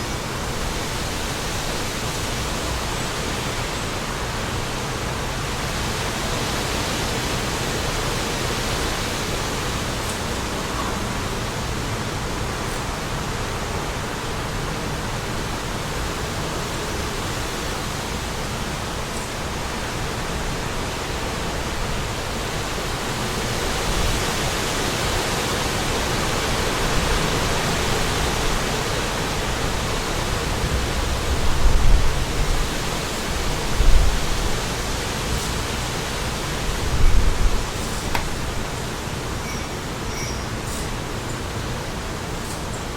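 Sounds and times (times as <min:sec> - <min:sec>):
wind blowing: 0:26.0 - 0:40.0
wind buffeting microphone: 0:30.2 - 0:34.7, 0:36.5 - 0:38.7.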